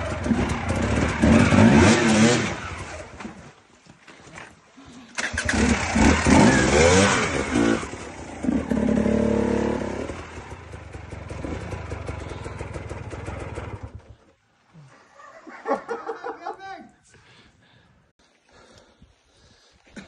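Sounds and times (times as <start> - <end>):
dirt bike engine revving and idling: 0.0 - 3.5, 5.2 - 14.4.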